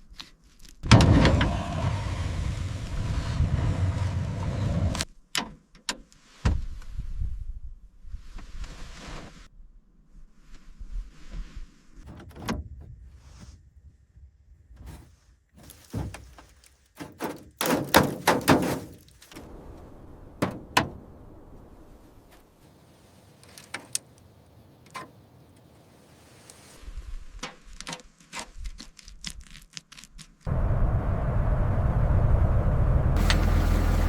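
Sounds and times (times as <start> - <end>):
thunks and knocks: 15.8 - 19.0.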